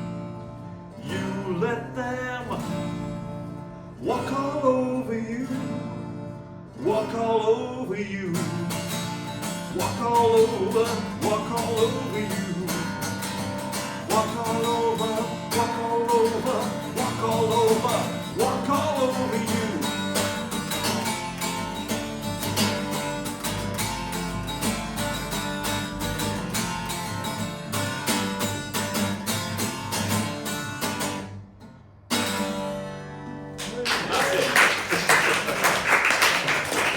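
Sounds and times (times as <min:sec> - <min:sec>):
acoustic guitar strumming: 0:00.0 - 0:33.8
person singing: 0:09.7 - 0:13.1, 0:14.0 - 0:20.3.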